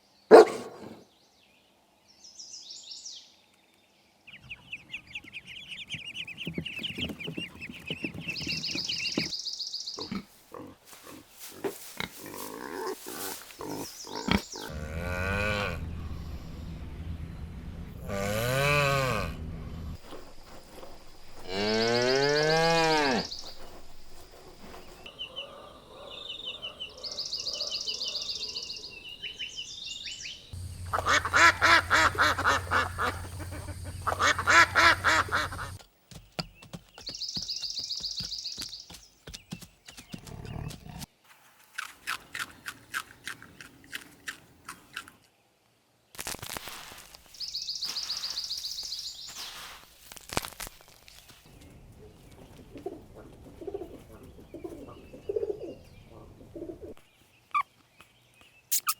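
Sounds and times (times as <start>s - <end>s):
drawn-out animal call: 12.4s - 20.0s, 30.6s - 35.8s
high peeping chirps: 26.4s - 35.8s
rapid pulsed animal calls: 30.6s - 35.8s.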